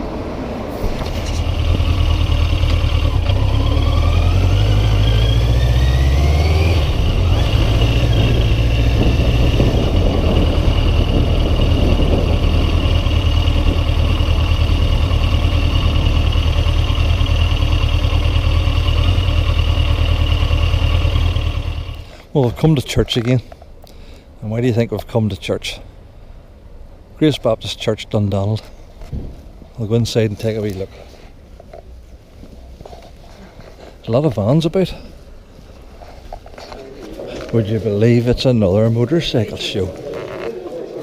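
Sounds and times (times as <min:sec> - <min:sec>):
motorcycle engine accelerating: 0:00.8 - 0:22.3
wind buffeting microphone: 0:06.9 - 0:15.2.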